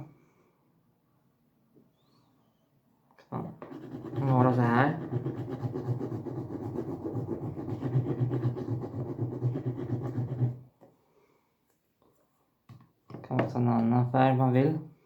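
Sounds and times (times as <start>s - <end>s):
pen scratching while colouring: 3.6s - 10.6s.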